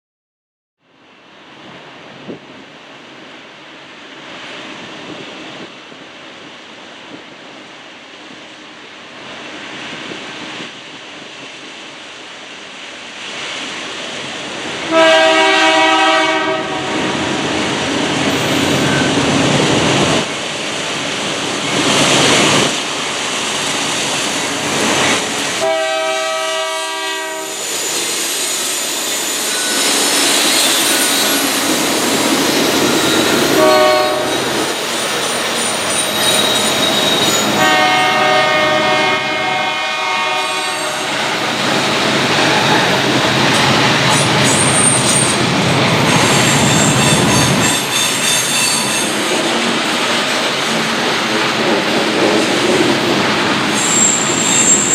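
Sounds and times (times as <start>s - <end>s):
freight train rolling: 1.3s - 54.9s
train air horn blasts: 14.9s - 17.3s, 25.6s - 27.7s, 33.2s - 34.5s, 37.5s - 41.3s.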